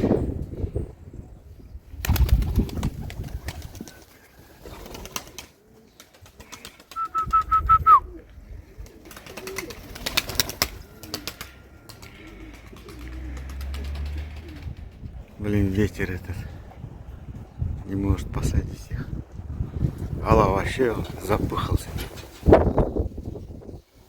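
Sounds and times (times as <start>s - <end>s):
wind buffeting microphone: 0.0s - 4.0s, 13.3s - 24.0s
pigeons flapping wings: 2.0s - 7.6s, 8.8s - 15.1s, 21.0s - 22.9s
pigeons cooing: 2.0s - 15.2s.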